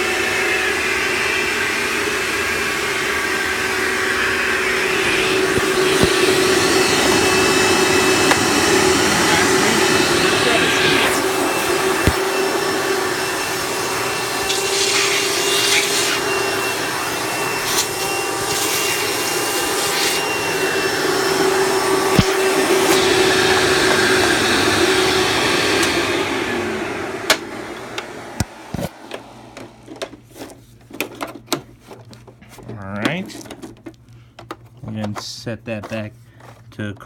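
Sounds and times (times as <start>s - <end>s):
vacuum cleaner motor humming: 0.0s - 31.6s.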